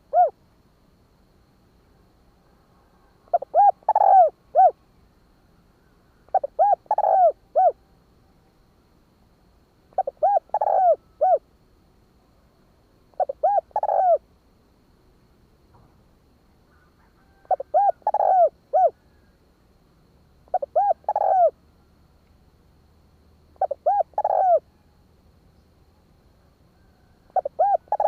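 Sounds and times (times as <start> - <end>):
dove cooing: 0.0 - 0.4, 3.3 - 4.8, 6.3 - 7.9, 9.9 - 11.4, 13.1 - 14.2, 16.7 - 19.3, 20.5 - 21.6, 23.6 - 25.0, 26.8 - 28.0.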